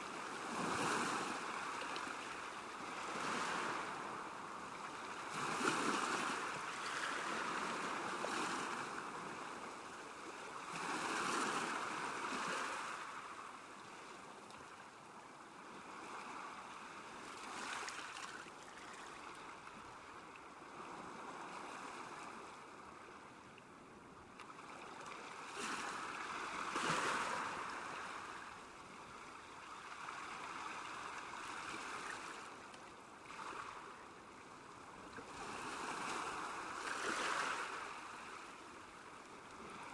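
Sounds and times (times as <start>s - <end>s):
small waves lapping: 16.0s - 23.5s, 24.3s - 39.9s.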